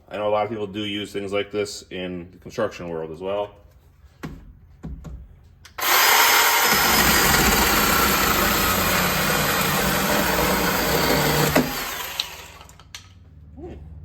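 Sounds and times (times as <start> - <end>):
electric chainsaw cutting wood: 5.8 - 12.9.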